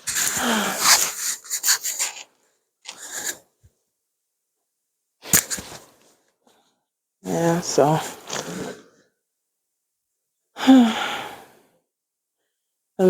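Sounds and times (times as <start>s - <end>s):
rubbing rustling noise: 0.0s - 2.3s, 2.9s - 3.4s, 5.2s - 6.2s.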